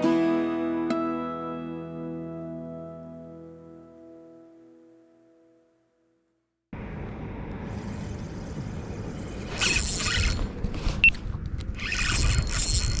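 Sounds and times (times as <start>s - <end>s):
wind: 6.7s - 13.0s
boat noise: 6.8s - 11.1s
fishing reel whirring and clicking: 9.5s - 10.5s, 11.8s - 13.0s.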